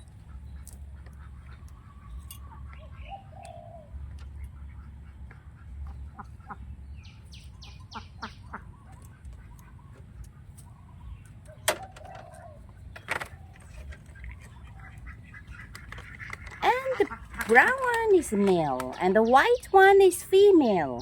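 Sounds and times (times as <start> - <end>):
bird chirping: 0.0 - 5.2, 5.8 - 21.0
low steady rumble: 0.0 - 21.0.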